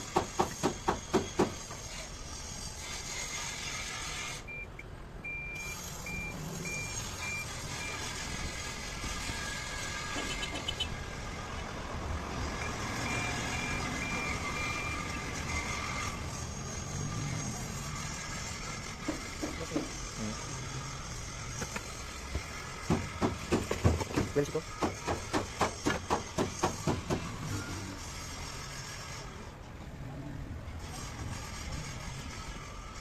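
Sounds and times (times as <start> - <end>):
reversing alarm beeping: 4.5 - 8.2, 12.6 - 15.2
machinery noise: 5.3 - 33.0
sharp knocks: 22.8 - 27.3.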